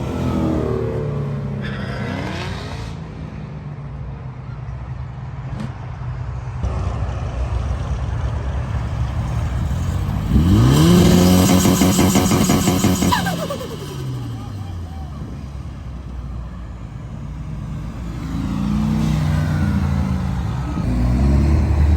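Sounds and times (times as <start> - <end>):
car engines idling: 4.0 - 18.2
car accelerating hard: 9.0 - 16.1, 17.4 - 21.9.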